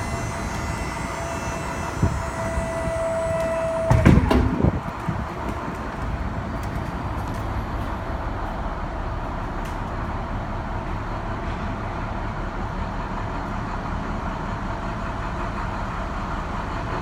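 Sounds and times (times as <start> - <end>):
hydraulic pump motor whine: 0.0 - 6.0
diesel engine idling: 0.0 - 17.0.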